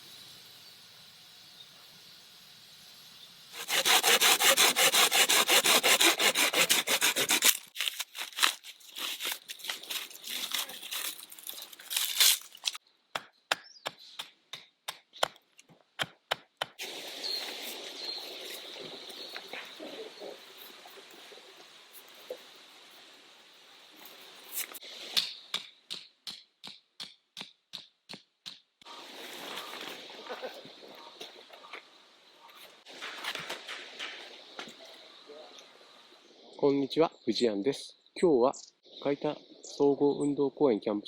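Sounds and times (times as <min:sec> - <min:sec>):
hand saw cutting wood: 0:03.6 - 0:12.8.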